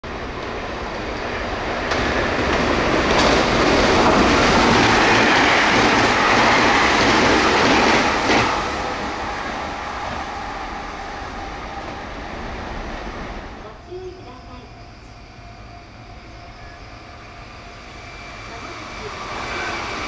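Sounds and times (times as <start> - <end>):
electric train passing fast: 0.0 - 20.0
wheels clacking on rail: 0.3 - 10.5.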